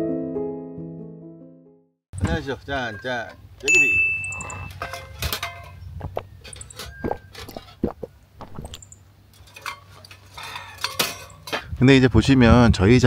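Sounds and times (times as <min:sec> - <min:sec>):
cans and tableware clinking: 0:03.7 - 0:11.6.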